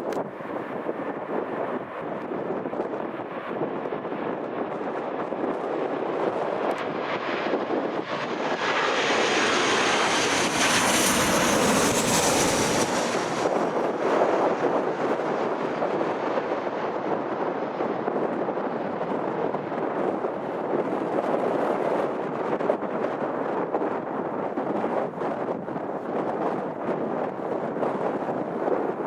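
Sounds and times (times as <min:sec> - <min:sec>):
airliner engines passing: 0:00.0 - 0:21.5
wind buffeting microphone: 0:00.0 - 0:29.0.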